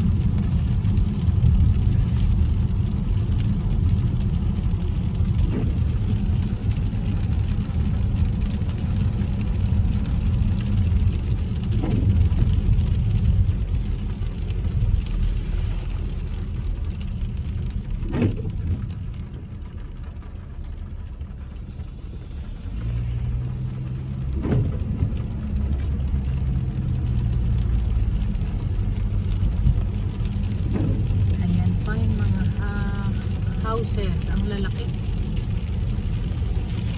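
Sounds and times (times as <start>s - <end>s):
tyre hiss on wet road: 0.0s - 4.7s
road and engine rumble: 0.0s - 36.9s.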